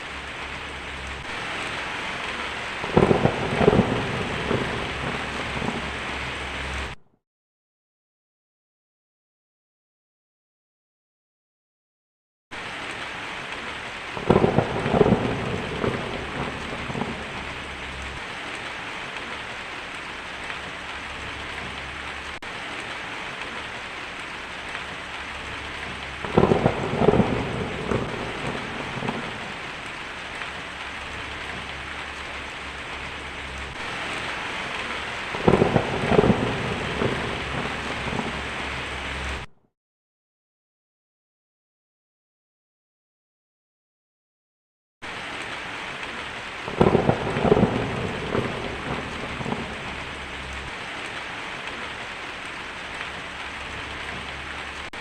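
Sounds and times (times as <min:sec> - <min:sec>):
steady rain: 0:00.0 - 0:07.0, 0:12.5 - 0:39.5, 0:45.0 - 0:55.0
thunder rolls: 0:01.2 - 0:07.0, 0:14.2 - 0:18.2, 0:25.4 - 0:39.5, 0:46.7 - 0:51.2.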